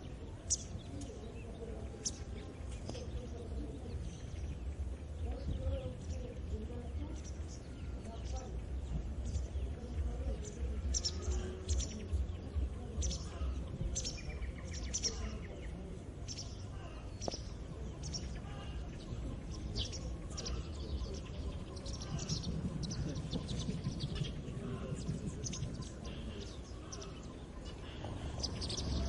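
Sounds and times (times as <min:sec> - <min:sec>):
birds chirping and singing: 0:00.0 - 0:29.0.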